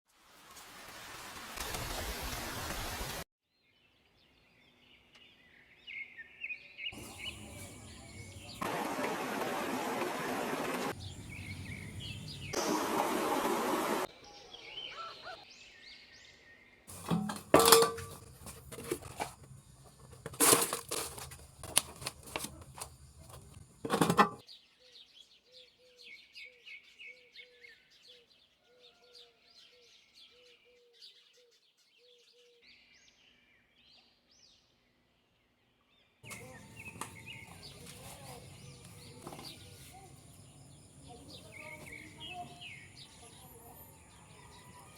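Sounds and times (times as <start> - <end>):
small birds chirping: 3.6 - 8.9, 10.9 - 12.6, 14.1 - 16.9, 21.4 - 44.9
soil shifting: 7.0 - 14.0, 16.9 - 24.4, 36.2 - 43.2
short repeating bird call: 14.4 - 15.5
plant pot knocked and moved: 16.9 - 24.4, 36.3 - 39.7
rustling noise: 16.9 - 24.4, 36.3 - 40.3.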